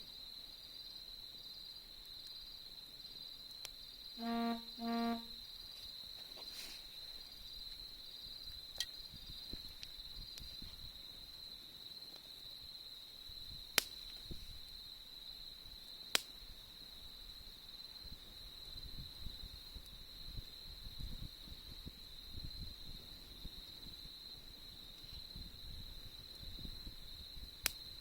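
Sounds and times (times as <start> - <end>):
insects trilling: 0.0 - 28.0
campfire crackling: 0.3 - 18.6, 23.0 - 28.0
fire popping: 13.2 - 14.8, 16.1 - 16.6, 24.6 - 28.0.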